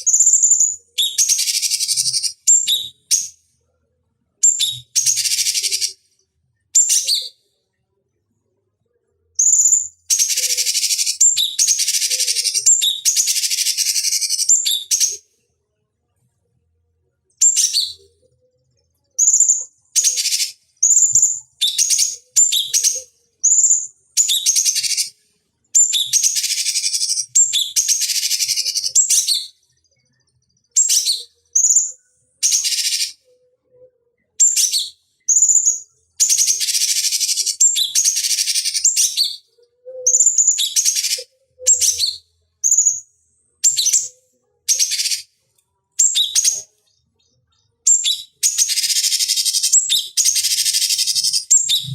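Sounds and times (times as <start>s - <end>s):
bird singing shrill harsh notes: 47.9s - 51.9s.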